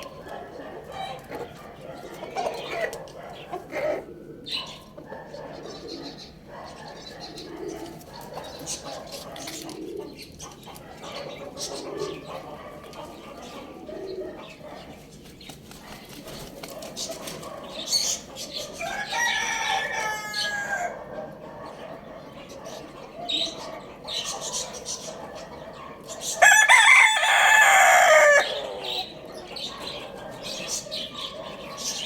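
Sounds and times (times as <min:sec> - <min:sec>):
rooster crowing: 0:18.8 - 0:21.0, 0:26.4 - 0:29.0.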